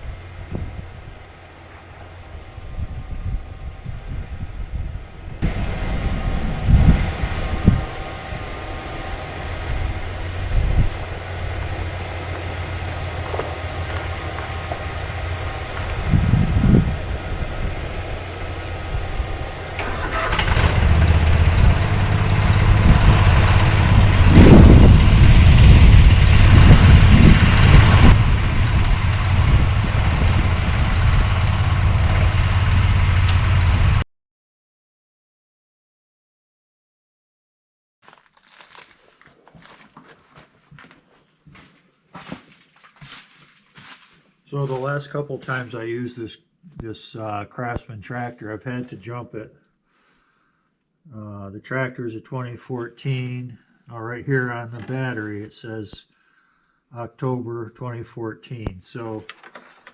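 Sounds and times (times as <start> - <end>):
riding tractor engine running: 0.0 - 34.0, 43.1 - 45.8.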